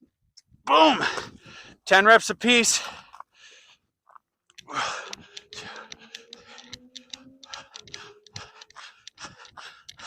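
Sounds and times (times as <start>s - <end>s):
scuffs on rocky ground: 2.6s - 5.7s.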